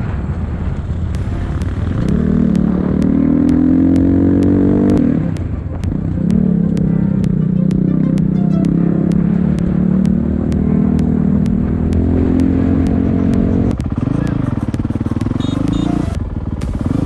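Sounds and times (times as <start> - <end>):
motorcycle engine under throttle: 1.2 - 7.4
sharp ticks: 1.2 - 17.0.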